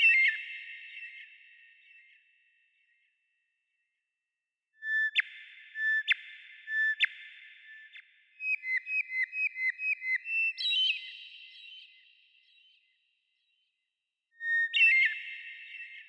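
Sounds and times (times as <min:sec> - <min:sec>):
bird whistling song: 0:00.0 - 0:02.0, 0:04.8 - 0:12.9, 0:14.4 - 0:16.0.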